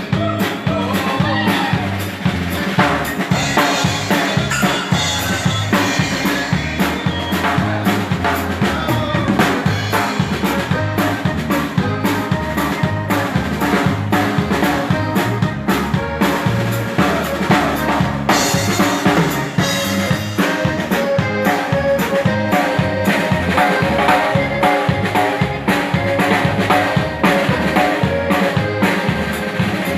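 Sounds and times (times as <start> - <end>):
dance band playing: 0.0 - 29.9
snare and bass drum beating: 0.0 - 29.9.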